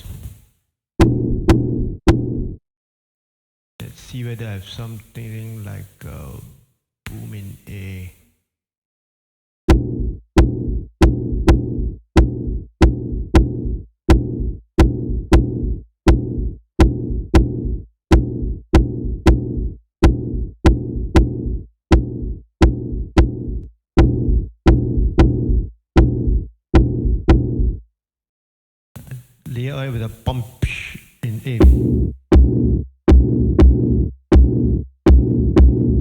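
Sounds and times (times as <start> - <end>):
electronic bass drum boom: 1.0 - 2.6, 9.7 - 27.8, 31.6 - 36.0.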